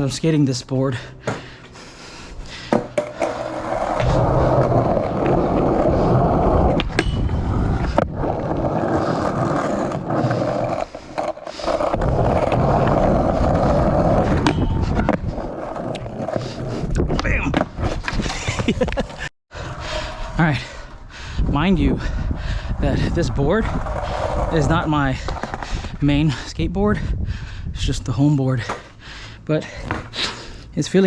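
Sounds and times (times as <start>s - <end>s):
skateboard wheels rumbling: 1.0s - 26.4s
skateboard clacks: 2.7s - 5.7s.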